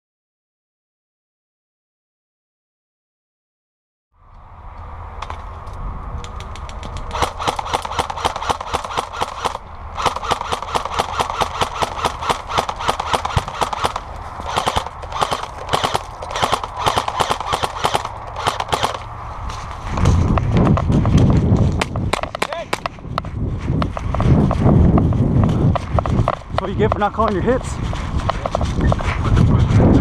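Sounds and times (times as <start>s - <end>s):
airsoft guns firing rapidly: 7.1s - 19.0s.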